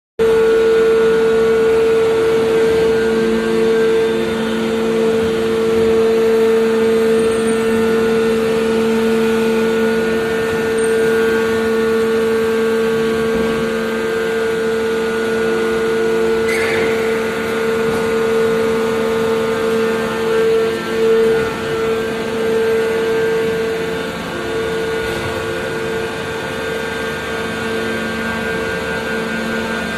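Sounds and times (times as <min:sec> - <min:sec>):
industrial machinery humming: 0:00.2 - 0:29.9.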